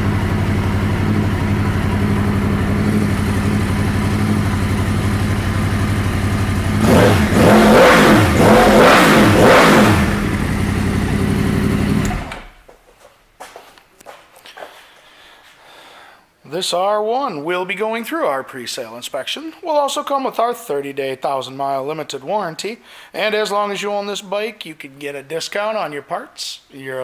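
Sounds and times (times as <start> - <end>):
motorcycle engine idling and revving: 0.0 - 12.6.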